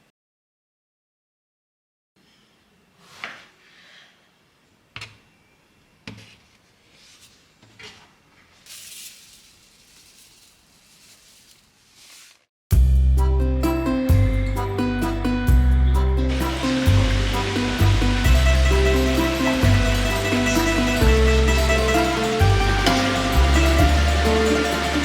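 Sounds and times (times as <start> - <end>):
soft rustling: 6.1 - 12.5.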